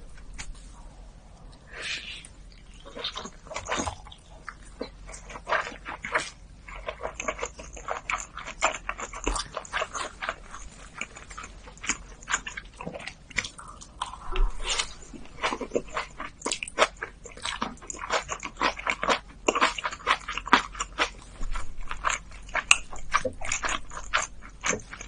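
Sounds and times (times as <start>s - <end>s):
wet chewing and mouth smacks: 2.2s - 25.0s.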